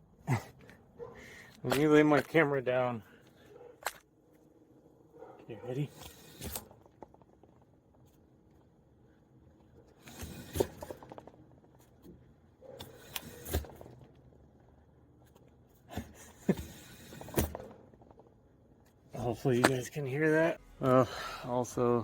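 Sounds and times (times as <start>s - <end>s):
object rattling inside a tire: 5.7s - 8.6s, 9.9s - 18.6s.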